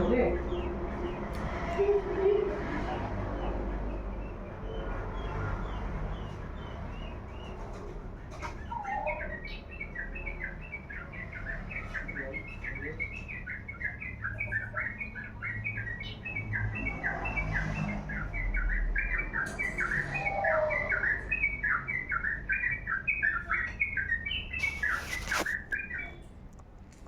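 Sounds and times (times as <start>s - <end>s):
songbird chirping: 0.0s - 26.8s
brief rustling: 24.6s - 25.8s.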